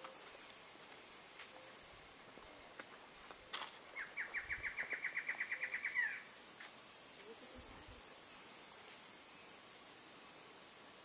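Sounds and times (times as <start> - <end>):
steady high hiss: 0.0 - 11.0
bird singing: 3.9 - 6.3.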